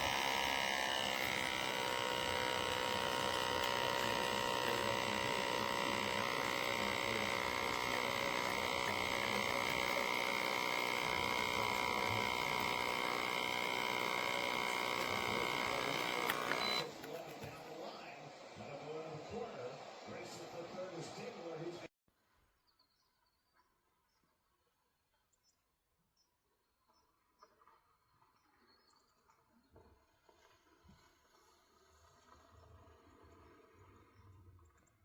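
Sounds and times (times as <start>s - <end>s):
small electric pump humming: 0.0s - 17.7s.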